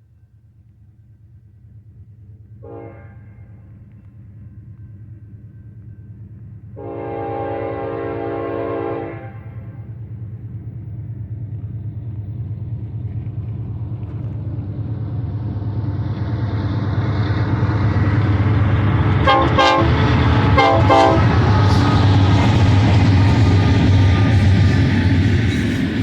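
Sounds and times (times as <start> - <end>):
freight train rumbling: 0.1 - 26.0
locomotive air horn blasts: 2.6 - 3.5, 6.8 - 9.8, 19.2 - 21.5.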